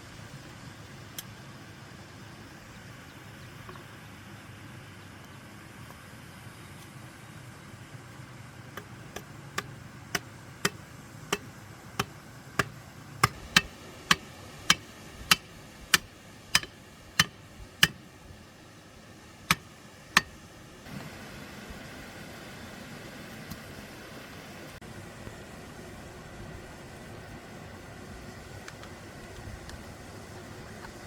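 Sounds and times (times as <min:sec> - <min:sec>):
sharp knocks on hard object: 0:10.7 - 0:18.0.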